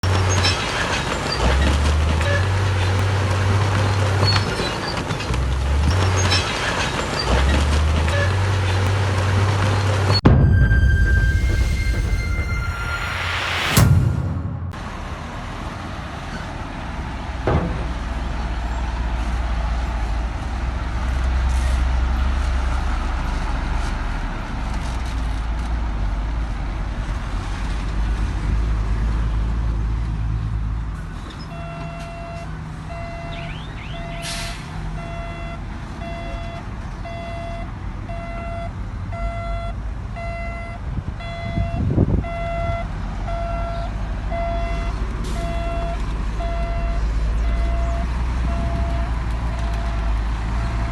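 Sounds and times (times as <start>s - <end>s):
diesel machinery engine rumble: 0.0s - 13.9s, 14.6s - 31.3s, 32.6s - 50.9s
reversing alarm beeping: 10.2s - 14.7s, 31.6s - 50.9s
sharp knock: 10.3s - 15.1s.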